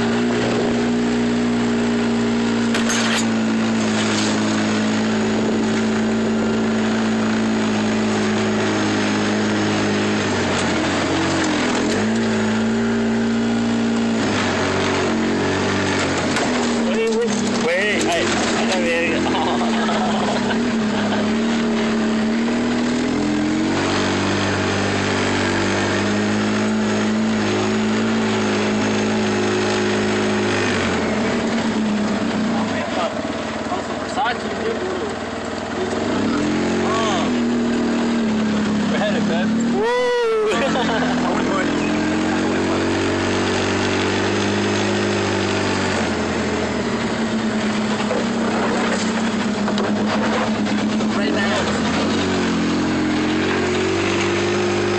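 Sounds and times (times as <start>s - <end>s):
road noise: 0.0s - 54.9s
truck engine hum: 0.0s - 54.9s.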